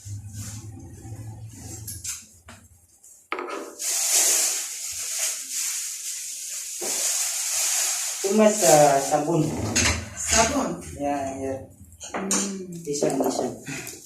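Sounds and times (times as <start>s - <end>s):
scraping and rubbing with hiss: 3.1s - 10.7s.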